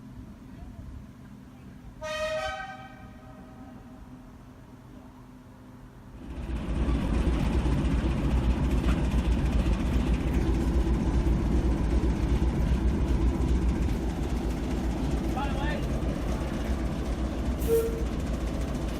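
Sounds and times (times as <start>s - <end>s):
train engine rumble: 0.0s - 18.9s.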